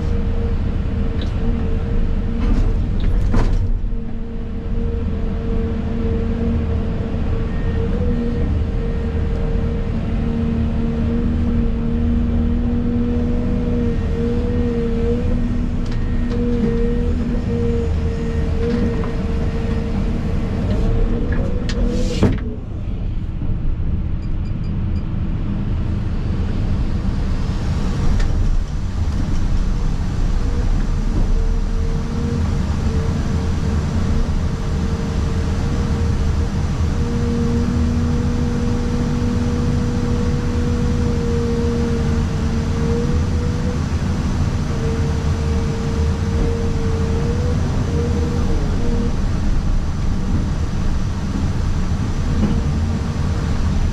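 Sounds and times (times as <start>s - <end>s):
excavator engine and hydraulics: 0.0s - 53.9s.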